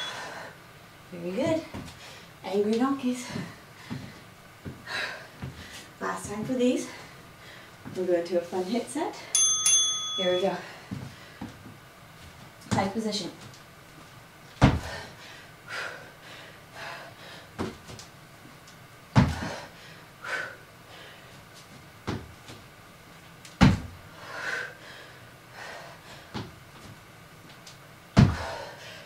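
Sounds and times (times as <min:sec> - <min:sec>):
feet thudding on floor mat: 0:14.6 - 0:15.0, 0:17.6 - 0:18.0, 0:19.2 - 0:19.6, 0:22.0 - 0:22.6, 0:23.6 - 0:24.0, 0:28.2 - 0:28.6.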